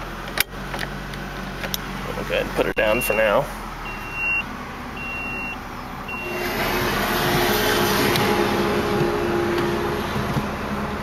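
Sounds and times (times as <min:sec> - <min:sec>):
car engine idling: 0:00.0 - 0:11.0
short warning beeps: 0:02.8 - 0:04.4, 0:05.0 - 0:06.5
seat belt motor whirring: 0:06.2 - 0:10.8.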